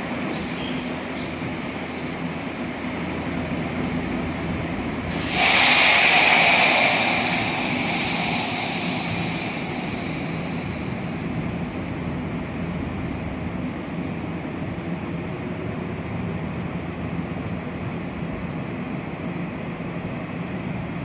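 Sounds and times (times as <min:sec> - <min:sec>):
electric train running hum: 0:00.0 - 0:21.0
compressed air hiss: 0:05.1 - 0:12.1.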